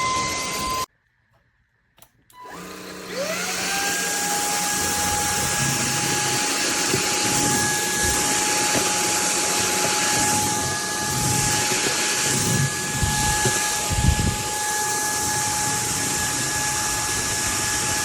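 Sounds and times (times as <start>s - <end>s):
vacuum cleaner motor whining: 0.0s - 0.9s, 2.3s - 18.0s.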